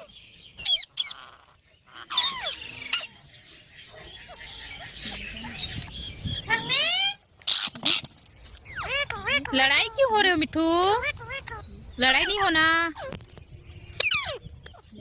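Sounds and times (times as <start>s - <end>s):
parrot squawking: 0.0s - 3.2s, 6.4s - 8.1s, 8.7s - 13.2s, 14.0s - 14.8s.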